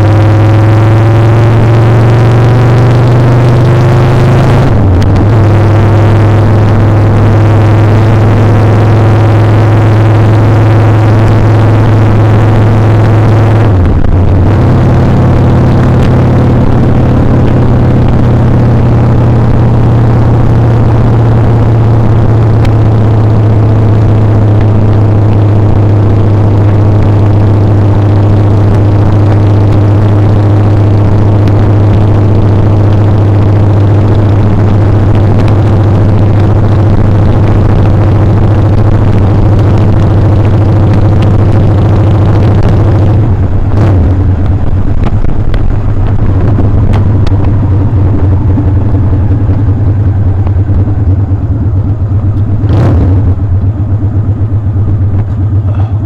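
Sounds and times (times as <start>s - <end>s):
motorcycle engine running: 0.0s - 56.0s
wind rushing over microphone: 31.0s - 53.6s.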